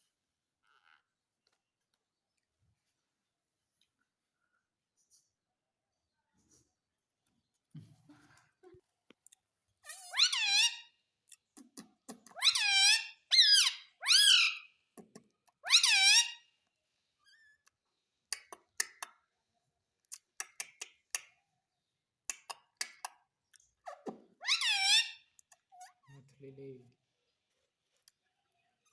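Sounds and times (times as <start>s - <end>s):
parrot calling: 9.9s - 11.0s, 12.3s - 14.7s, 15.6s - 16.4s, 23.8s - 26.1s.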